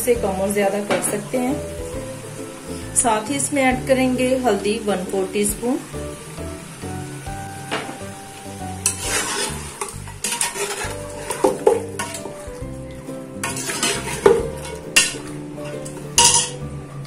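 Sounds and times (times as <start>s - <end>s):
meat sizzling in hot oil: 0.0s - 17.0s
ladle scraping metal pot: 8.8s - 16.6s.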